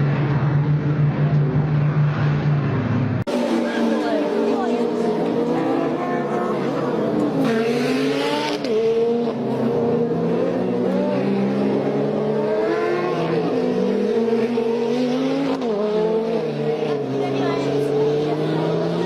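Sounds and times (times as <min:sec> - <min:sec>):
race car engines at high revs: 0:00.0 - 0:19.0.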